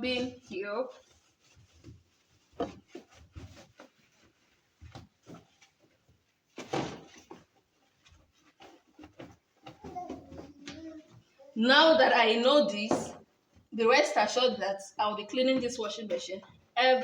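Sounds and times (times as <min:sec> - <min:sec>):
scrubbing: 0:00.0 - 0:12.8
knocks and clatter of parts: 0:02.6 - 0:11.3.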